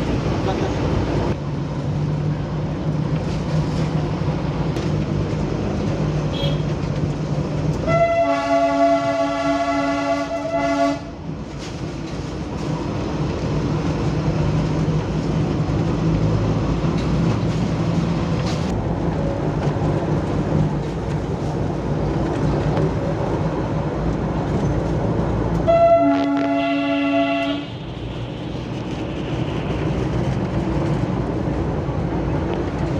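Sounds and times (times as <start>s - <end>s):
diesel locomotive rumbling: 0.0s - 32.9s
locomotive horn blasts: 7.8s - 11.1s, 25.6s - 27.8s.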